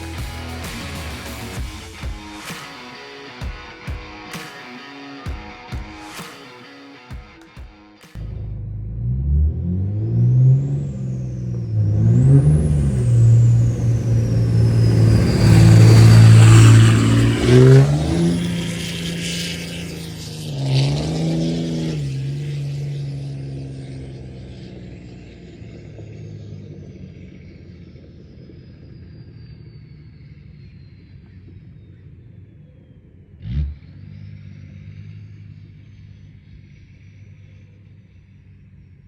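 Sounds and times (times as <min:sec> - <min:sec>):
diesel engine accelerating: 0:00.0 - 0:04.4, 0:08.0 - 0:39.0
high turbo whistle: 0:00.0 - 0:06.8, 0:10.0 - 0:23.8.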